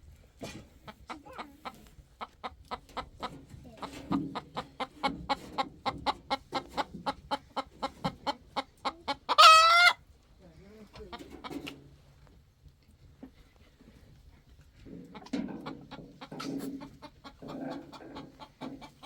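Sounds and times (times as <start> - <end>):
chickens clucking: 0.4 - 10.0, 10.8 - 12.1, 13.1 - 19.0
chicken squawking: 8.6 - 10.0, 16.3 - 19.0.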